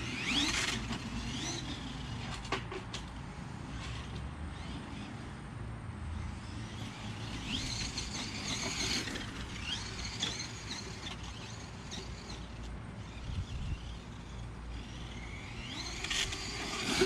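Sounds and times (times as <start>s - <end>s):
electric motor whining: 0.0s - 2.5s, 6.2s - 17.0s.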